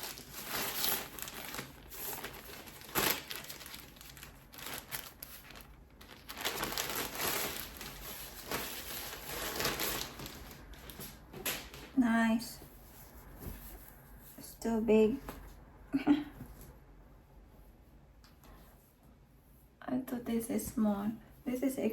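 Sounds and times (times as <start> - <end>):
plastic bags crinkling: 0.0 - 11.8.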